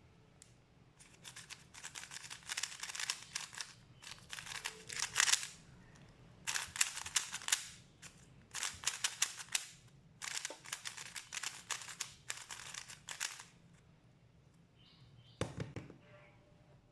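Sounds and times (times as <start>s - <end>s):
puzzle cube clicking turns: 1.0s - 5.6s, 6.5s - 13.5s.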